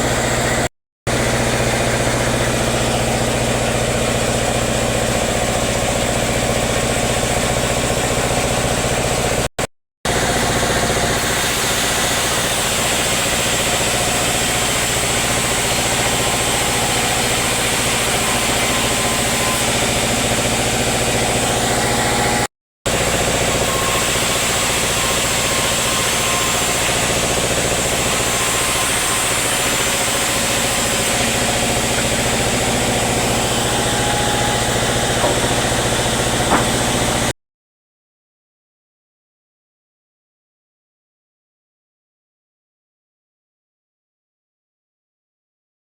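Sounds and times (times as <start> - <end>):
sawmill machinery humming: 0.0 - 9.5, 10.1 - 37.3.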